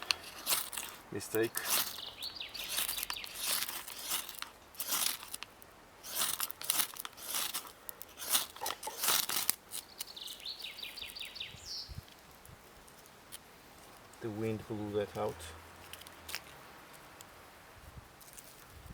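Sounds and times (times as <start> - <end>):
ferro rod scraping: 0.0 - 9.9
bird chirping: 1.4 - 3.7, 9.7 - 12.0.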